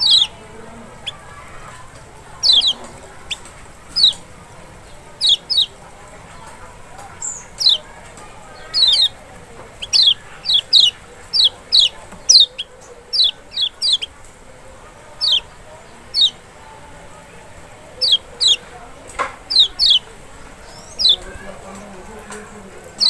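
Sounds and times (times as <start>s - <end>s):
bird calling high sharp notes: 2.4s - 4.2s, 8.5s - 9.2s, 9.8s - 14.2s, 18.0s - 18.7s.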